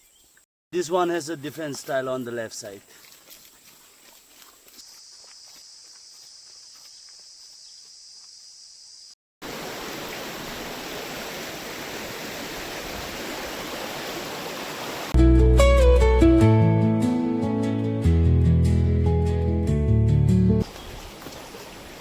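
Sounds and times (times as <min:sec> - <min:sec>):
high insect buzz: 0:04.4 - 0:09.2
stream rushing: 0:09.4 - 0:15.2, 0:20.6 - 0:22.0
acoustic guitar music: 0:15.2 - 0:20.6.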